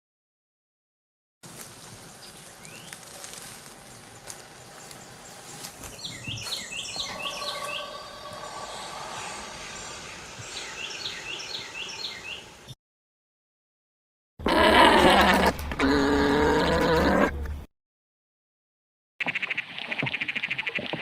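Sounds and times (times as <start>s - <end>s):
bird chirping: 2.0s - 3.2s, 4.0s - 12.8s
steady hiss: 7.5s - 12.7s.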